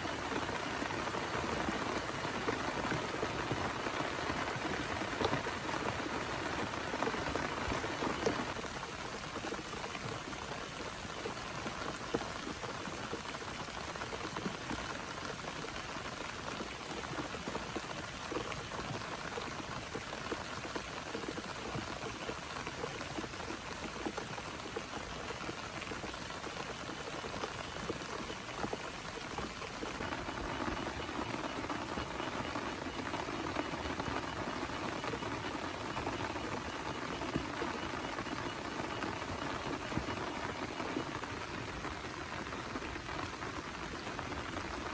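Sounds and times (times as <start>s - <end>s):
heavy rain falling: 0.0s - 9.2s, 28.0s - 44.9s.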